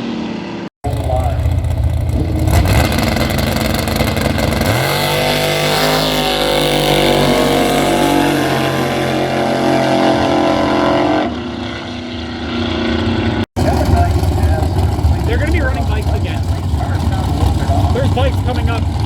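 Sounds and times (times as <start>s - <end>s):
racing car engine at full throttle: 0.0s - 19.0s.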